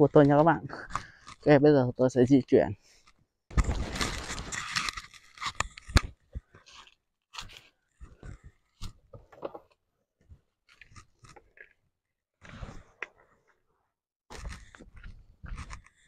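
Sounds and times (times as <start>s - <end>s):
rustling of dry grass and leaves: 3.5s - 5.4s.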